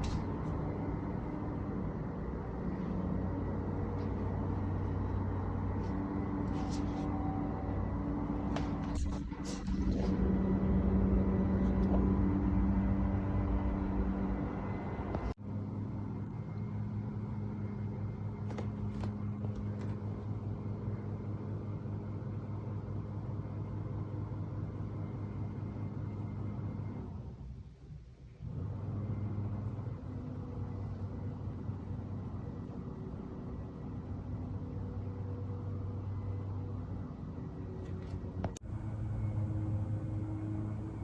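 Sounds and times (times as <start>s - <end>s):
construction machinery drone: 0.0s - 27.4s, 28.4s - 41.0s.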